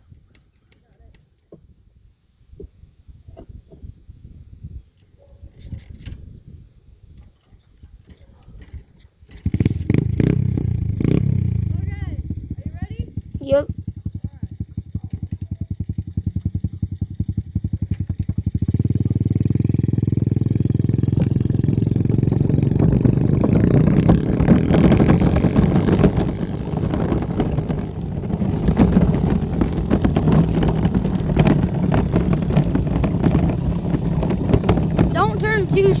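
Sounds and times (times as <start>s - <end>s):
dirt bike engine: 9.3s - 36.0s.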